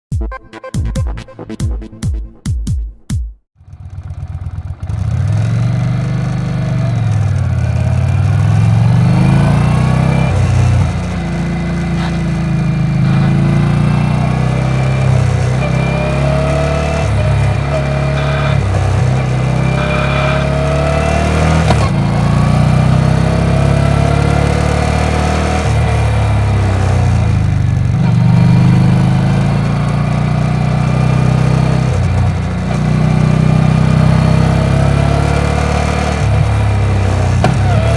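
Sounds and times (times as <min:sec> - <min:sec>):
motorcycle engine idling: 0:03.6 - 0:24.6, 0:25.7 - 0:34.1.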